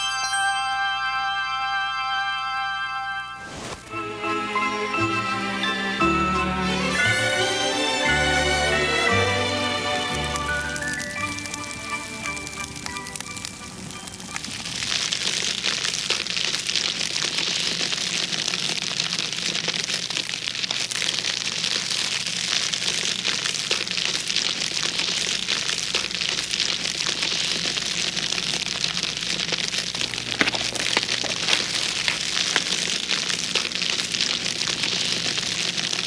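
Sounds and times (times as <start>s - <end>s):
wood fire crackling: 3.5s - 4.0s, 9.7s - 36.0s.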